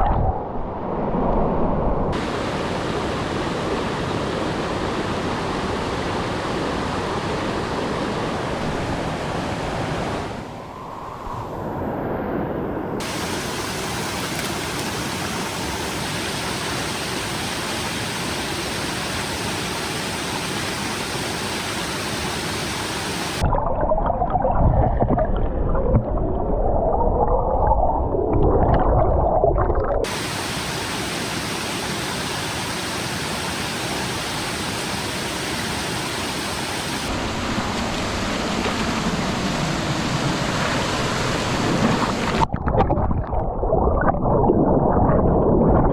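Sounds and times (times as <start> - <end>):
stream water rushing: 2.2 - 10.7, 13.0 - 23.5, 30.0 - 42.5.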